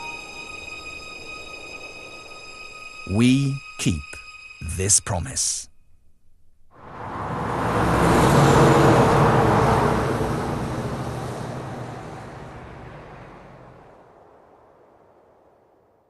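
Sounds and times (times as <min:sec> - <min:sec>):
truck driving past: 0:06.8 - 0:15.6.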